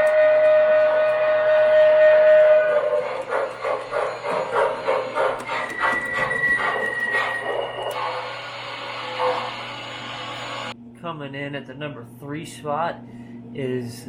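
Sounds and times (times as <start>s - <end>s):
steam locomotive chuffing: 0.0s - 10.7s
steam whistle tone: 0.0s - 10.8s.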